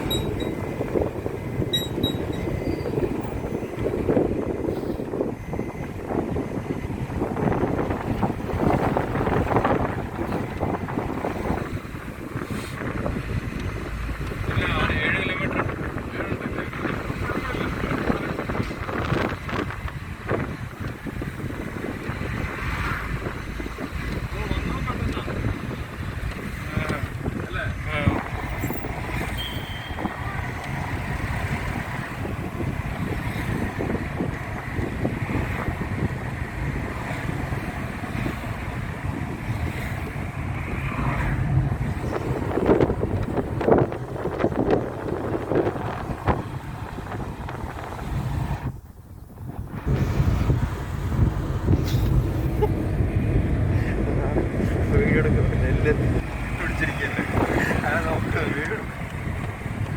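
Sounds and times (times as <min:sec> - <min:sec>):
car rumbling: 0:00.0 - 0:59.9
wind buffeting microphone: 0:00.0 - 0:59.9.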